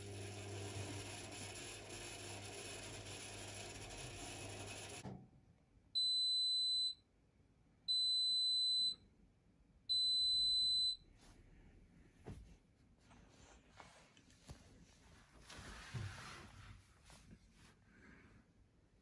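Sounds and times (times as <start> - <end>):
washing machine running: 0.0 - 5.2.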